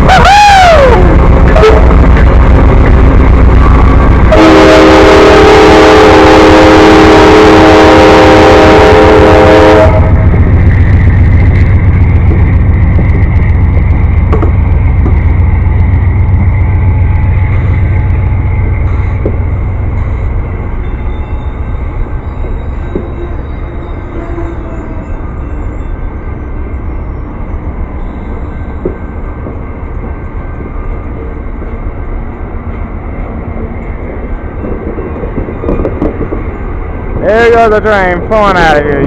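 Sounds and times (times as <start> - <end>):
diesel locomotive rumbling: 0.0 - 39.0
multi-tone train air horn: 4.3 - 10.3.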